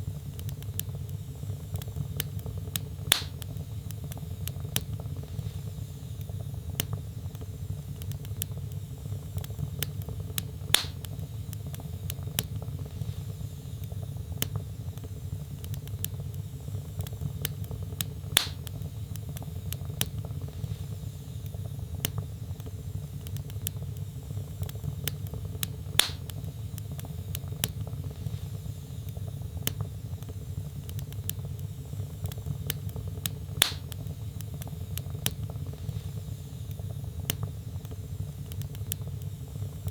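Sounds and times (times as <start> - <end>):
low fire rumble: 0.0 - 39.9
wood fire crackling: 0.0 - 39.9
loud fire pops: 0.3 - 5.8, 8.0 - 13.3, 14.4 - 20.9, 24.6 - 28.6, 29.2 - 39.1.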